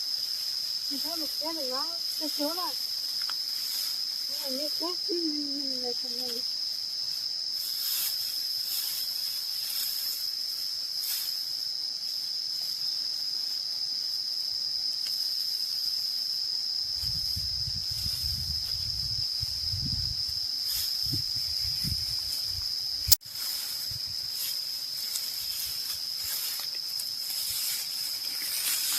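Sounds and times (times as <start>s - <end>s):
insects shrilling: 0.0s - 28.9s.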